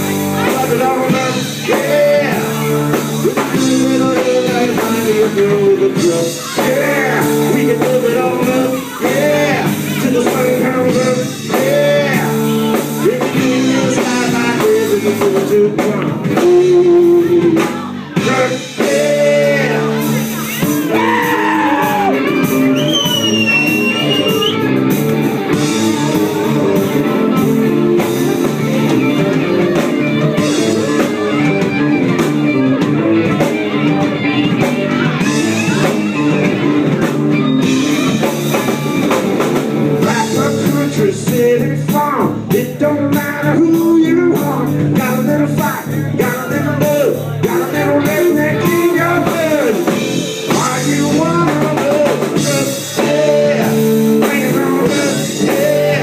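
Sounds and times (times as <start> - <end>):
lead guitar with bending notes: 0.0 - 41.6
live rock band playing: 0.0 - 56.0.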